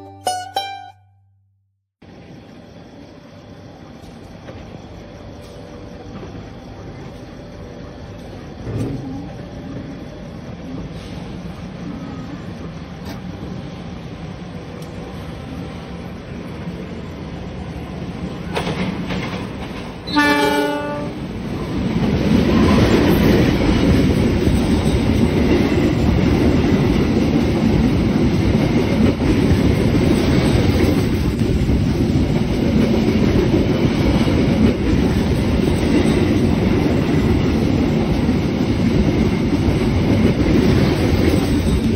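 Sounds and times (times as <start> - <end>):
train rumble and wheel clatter: 2.0 - 41.9
train horn blast: 20.1 - 21.3.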